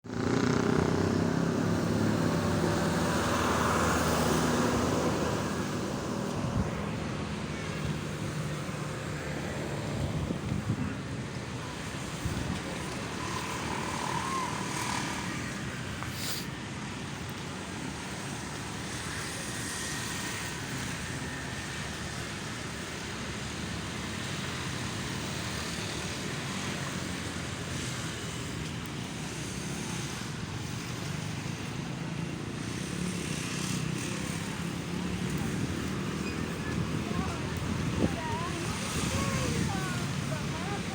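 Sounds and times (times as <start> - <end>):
engine passing close: 0.0 - 16.5
road traffic: 0.0 - 40.9.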